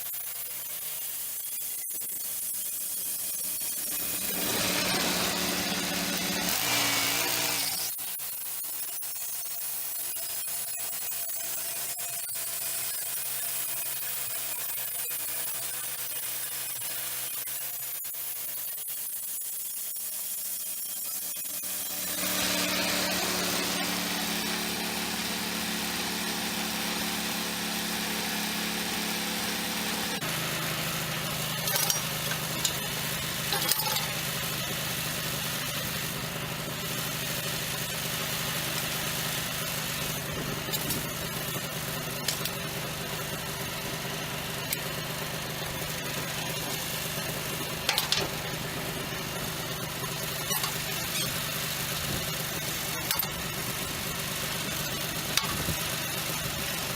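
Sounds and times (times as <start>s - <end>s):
sawmill engine running: 2.4s - 8.0s, 21.6s - 56.9s.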